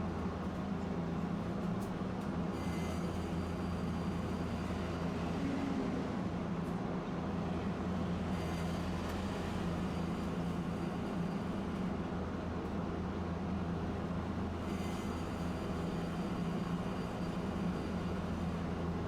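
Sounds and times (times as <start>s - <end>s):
streetcar motors and wheels rumbling: 4.0s - 19.0s.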